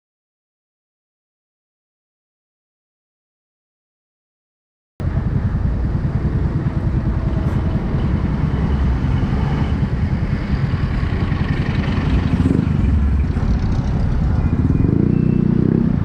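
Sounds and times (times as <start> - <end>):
motorcycle engine and road noise: 5.0 - 16.0.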